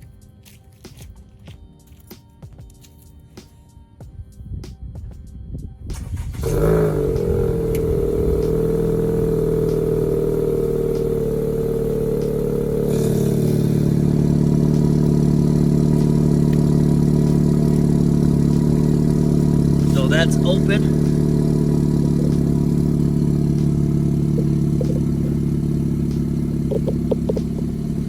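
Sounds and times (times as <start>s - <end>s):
car engine cold start: 5.9s - 28.0s
car engine idling: 5.9s - 28.0s.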